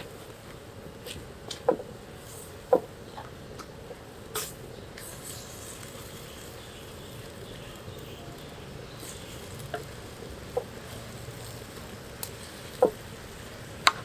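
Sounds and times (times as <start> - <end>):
faint ticks: 0.0 - 14.0
food hissing on stove: 4.3 - 13.8.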